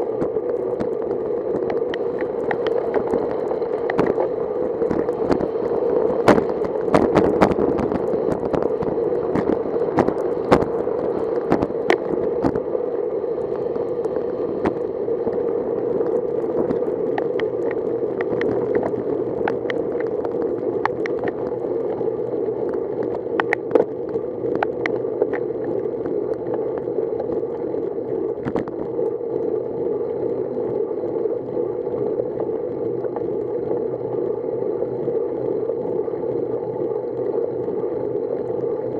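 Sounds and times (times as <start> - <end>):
bicycle tyre and wind noise: 0.0 - 38.9
sharp clicks and ticks: 0.2 - 5.5, 16.0 - 21.5, 22.7 - 25.5.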